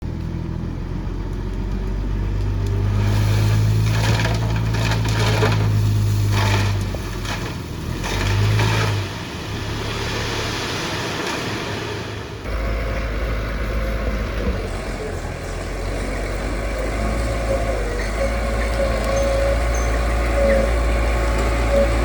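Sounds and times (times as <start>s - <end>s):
heavy diesel engine under load: 0.0s - 22.0s
crunching of loose earth: 1.3s - 9.2s.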